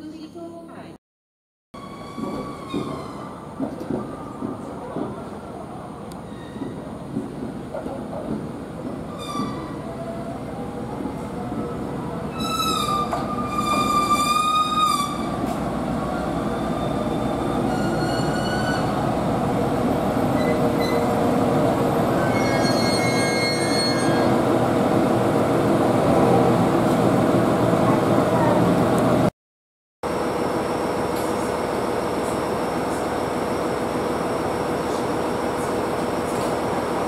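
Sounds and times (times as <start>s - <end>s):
high wavering brake squeals: 1.8s - 3.4s, 9.1s - 10.2s, 12.3s - 15.4s, 16.3s - 19.0s, 20.3s - 21.2s, 22.1s - 24.3s
train running noise: 1.8s - 29.3s, 30.1s - 37.0s.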